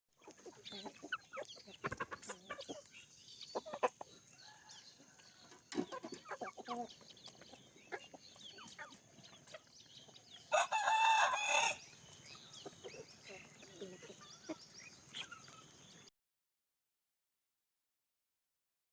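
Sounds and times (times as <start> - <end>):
chickens clucking: 0.2 - 16.1
rooster crowing: 10.5 - 11.9.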